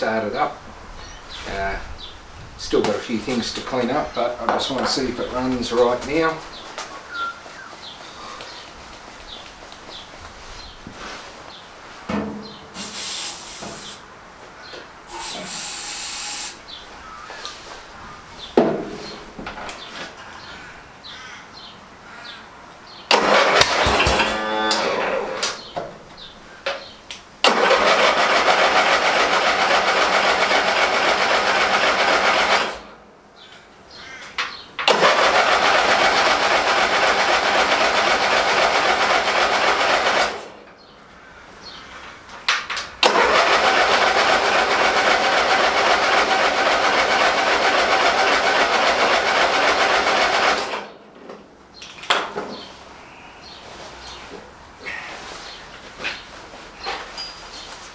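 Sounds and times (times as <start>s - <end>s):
mower engine cranking: 2.7s - 6.6s, 12.2s - 14.1s, 15.1s - 16.7s, 23.1s - 25.8s, 27.4s - 33.0s, 34.8s - 40.7s, 42.7s - 51.0s.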